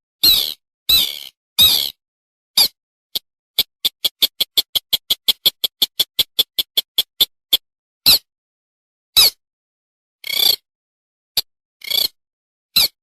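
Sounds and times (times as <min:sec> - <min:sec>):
rail bird calls: 0:00.2 - 0:02.0.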